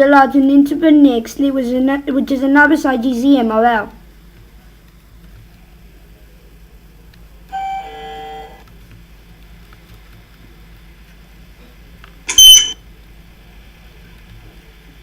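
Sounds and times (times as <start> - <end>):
high-pitched electronic beep: 12.3 - 12.8.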